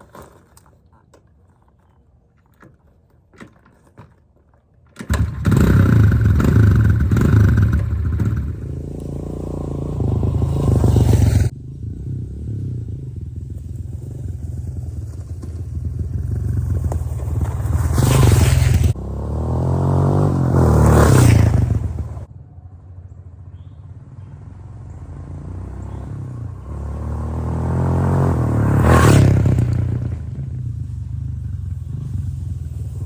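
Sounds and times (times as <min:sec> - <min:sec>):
dirt bike engine revving: 0:05.1 - 0:14.9, 0:15.8 - 0:22.3, 0:24.9 - 0:33.0.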